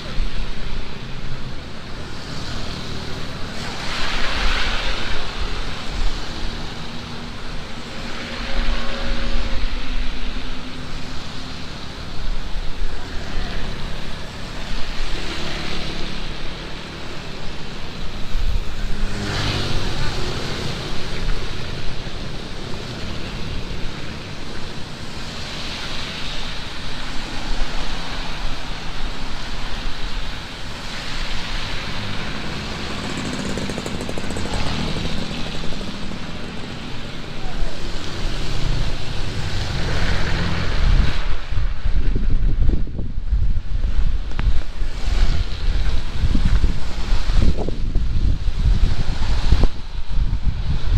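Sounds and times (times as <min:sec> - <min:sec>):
heavy rain pouring: 0:00.0 - 0:50.9
vehicles driving past: 0:00.0 - 0:50.9.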